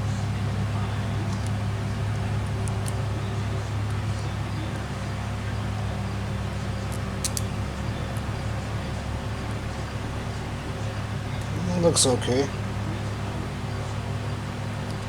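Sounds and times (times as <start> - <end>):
low machine hum: 0.0 - 15.0
clicks of small parts handled: 6.9 - 7.5.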